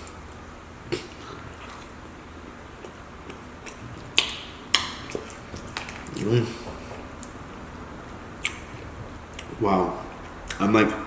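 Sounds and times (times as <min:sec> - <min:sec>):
chewing and lip smacking: 0:02.7 - 0:07.4, 0:08.4 - 0:10.6
sharp wet smacks: 0:02.8 - 0:07.4, 0:08.4 - 0:09.6.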